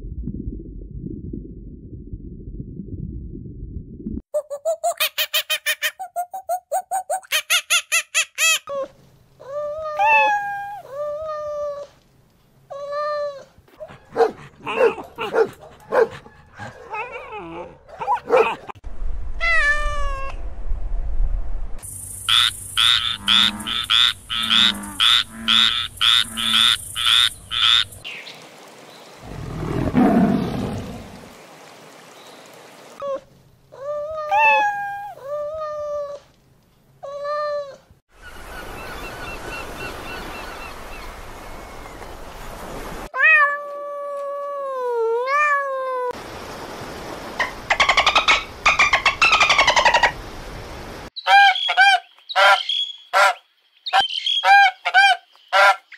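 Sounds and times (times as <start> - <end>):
tiger growling: 29.3 - 31.2
cat meowing: 43.2 - 46.1.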